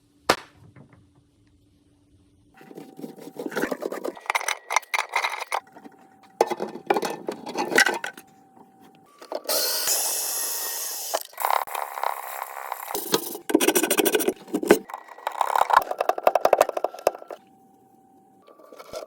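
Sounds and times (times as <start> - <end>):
plumbing parts and tools clinking: 2.6 - 19.0.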